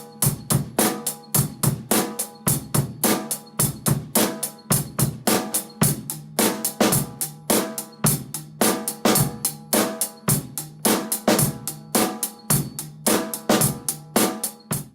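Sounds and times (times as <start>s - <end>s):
acoustic drum kit playing: 0.0s - 14.9s.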